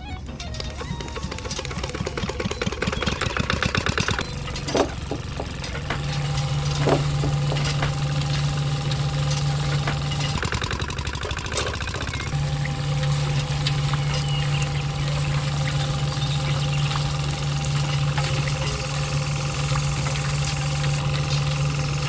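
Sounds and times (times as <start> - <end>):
small engine running: 0.0 - 22.0
sharp knocks: 1.4 - 10.4.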